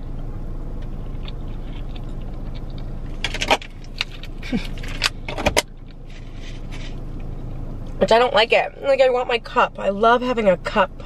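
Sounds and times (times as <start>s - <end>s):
low car hum: 0.0s - 11.0s
chewing salad: 0.8s - 3.2s.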